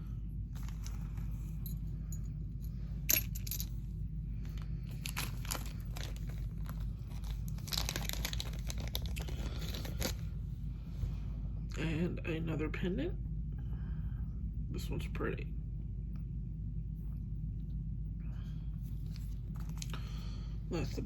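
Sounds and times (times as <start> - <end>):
steady low hum: 0.0 - 21.0
beads clinking: 0.5 - 10.2.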